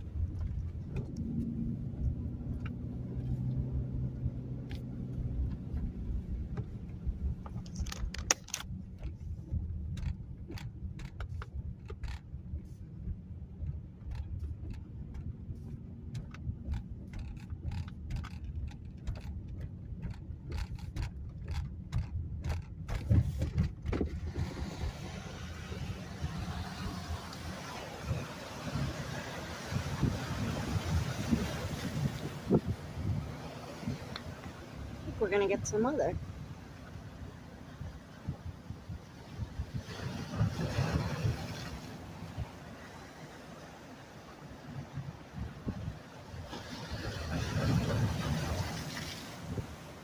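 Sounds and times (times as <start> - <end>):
car cabin rumble: 0.0 - 50.0
small clicks and rattles: 6.5 - 12.8, 13.6 - 24.2.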